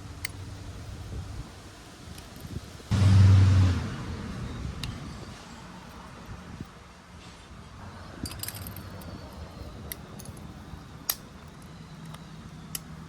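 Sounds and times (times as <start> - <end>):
small metal parts clinking: 8.2 - 13.0.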